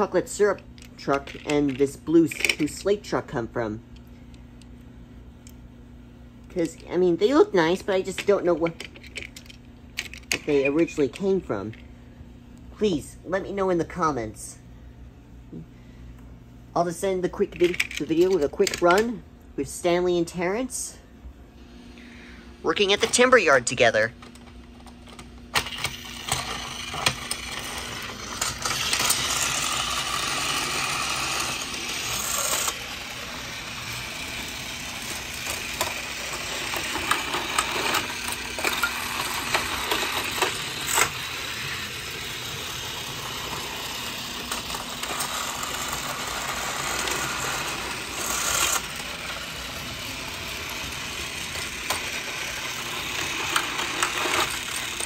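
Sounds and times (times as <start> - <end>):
toy train motor whirring: 25.6 - 55.0.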